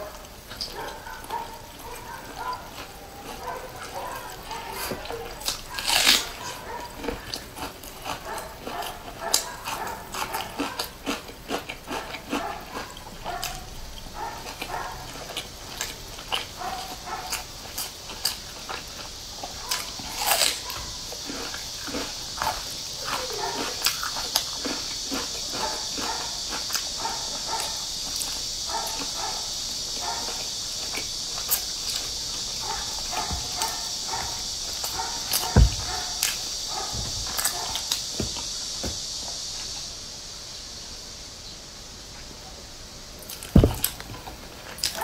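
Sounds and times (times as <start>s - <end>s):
chewing and wet mouth sounds: 0.0s - 39.9s, 43.2s - 45.0s
steady high hiss: 0.0s - 45.0s
low thump: 35.4s - 36.1s, 36.9s - 37.4s, 43.6s - 43.9s.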